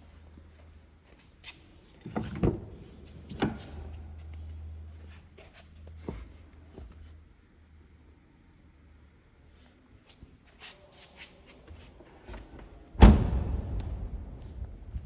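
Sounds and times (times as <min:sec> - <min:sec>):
low steady hum: 0:12.1 - 0:15.0.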